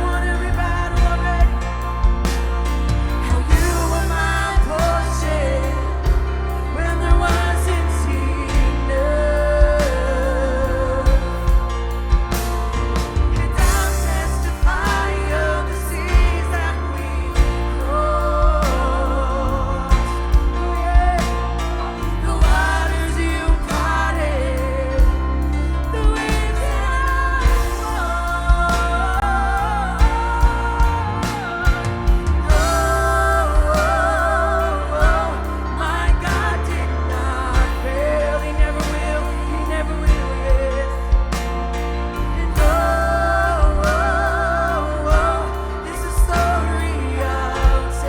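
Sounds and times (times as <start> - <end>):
bass: 0.0 - 48.0
keyboard chords: 0.0 - 48.0
worship band music: 0.0 - 48.0
drum hits: 11.1 - 18.9, 19.9 - 24.2, 30.0 - 34.4, 40.1 - 44.3.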